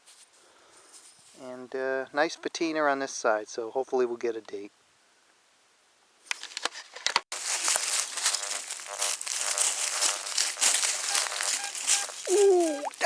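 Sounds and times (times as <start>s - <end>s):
dry leaves crunching: 7.3s - 13.0s.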